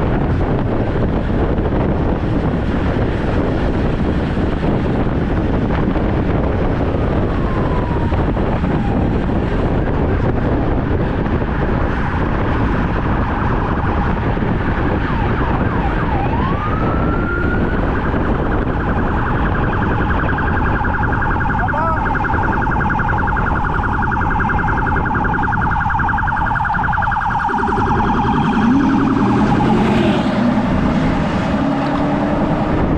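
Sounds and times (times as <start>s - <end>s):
wind buffeting microphone: 0.0s - 32.9s
siren wailing: 6.6s - 9.8s, 12.1s - 32.9s.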